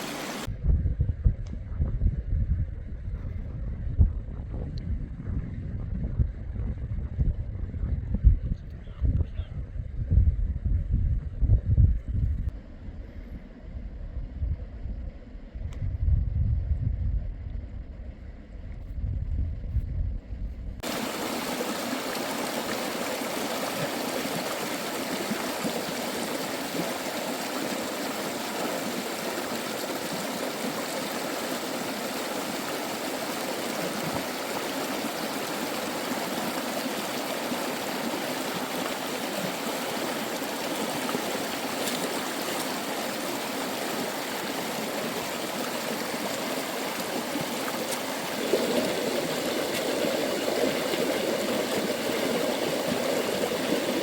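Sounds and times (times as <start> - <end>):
stream water rushing: 0.0 - 0.5, 20.8 - 54.0.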